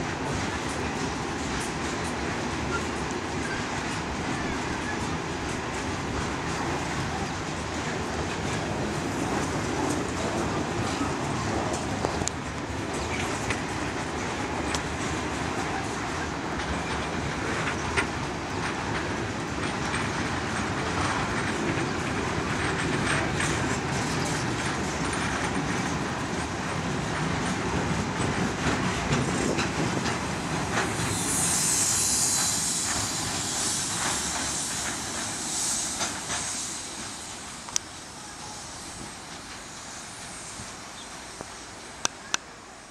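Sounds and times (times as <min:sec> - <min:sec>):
train wheels clattering: 0:00.0 - 0:42.5.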